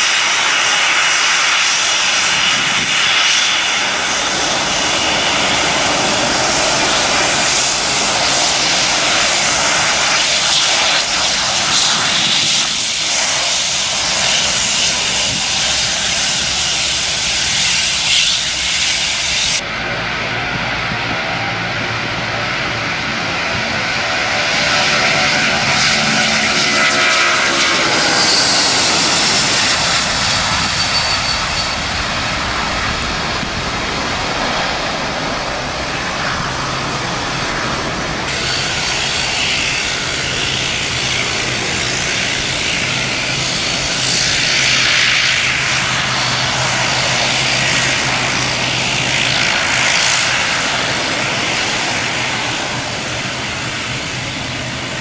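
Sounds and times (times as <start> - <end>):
airplane engines passing: 0.0 - 55.0
falling engine whine: 0.0 - 55.0.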